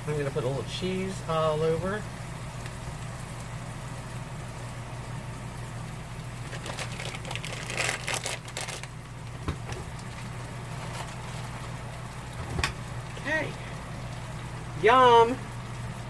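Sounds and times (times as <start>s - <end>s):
steady low hum: 0.0s - 16.0s
packaging crinkling and rustling: 6.4s - 11.8s.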